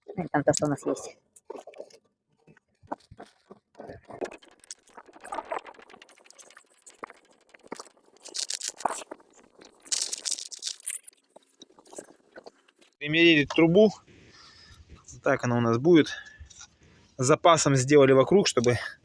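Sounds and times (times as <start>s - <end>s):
polystyrene foam scraping and crunching: 8.1s - 12.4s.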